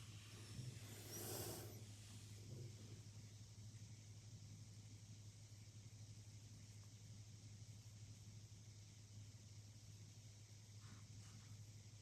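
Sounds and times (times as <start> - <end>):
faint hiss: 0.0 - 3.1.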